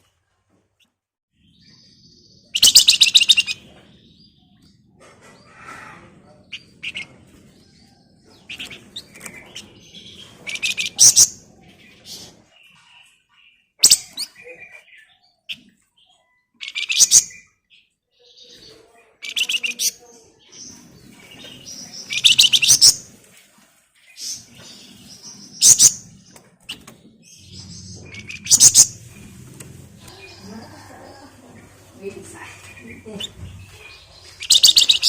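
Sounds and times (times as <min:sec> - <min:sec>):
songbird chattering trills: 0:20.7 - 0:23.0, 0:27.3 - 0:29.4, 0:30.0 - 0:35.0.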